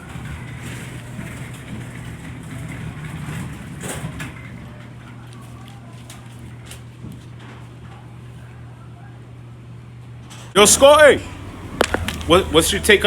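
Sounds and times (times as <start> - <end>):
truck engine idling: 10.6 - 13.0.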